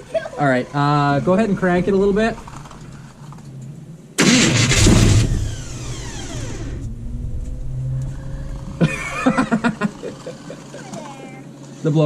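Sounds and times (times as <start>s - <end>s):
voices: 0.0s - 3.9s, 8.0s - 12.0s
low steady hum: 0.0s - 11.4s
engine cranking and catching: 1.6s - 11.8s.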